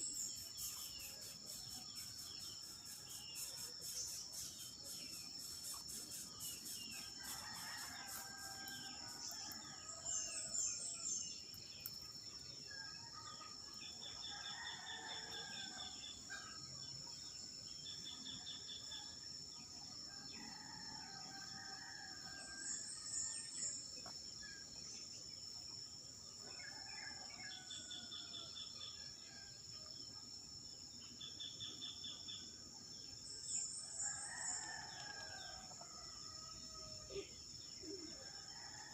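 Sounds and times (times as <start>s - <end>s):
high insect drone: 0.0s - 12.9s, 13.8s - 25.7s.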